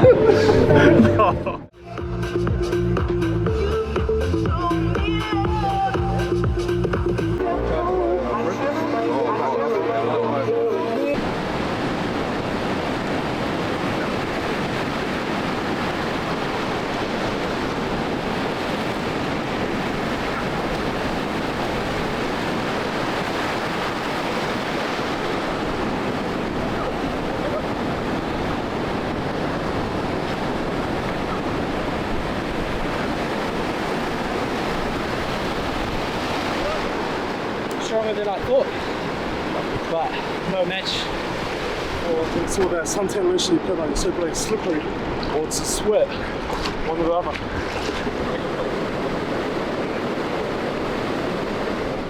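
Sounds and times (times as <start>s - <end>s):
waves breaking on beach: 8.6s - 52.0s
wind buffeting microphone: 11.2s - 52.0s.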